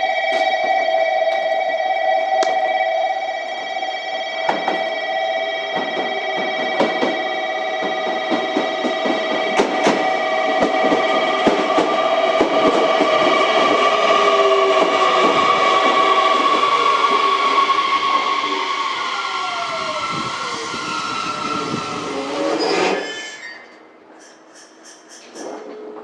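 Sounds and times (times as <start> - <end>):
electric train whine: 0.0 - 23.4
train clicks and knocks: 4.4 - 5.0, 5.6 - 18.3, 24.2 - 26.0.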